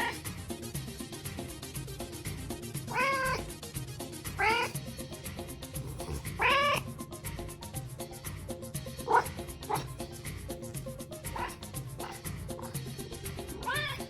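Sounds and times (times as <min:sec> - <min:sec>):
cat meowing: 0:00.0 - 0:00.3, 0:02.9 - 0:03.5, 0:04.4 - 0:04.8, 0:05.8 - 0:07.0, 0:09.0 - 0:10.1, 0:11.2 - 0:14.0
background music with steady beat: 0:00.0 - 0:14.0.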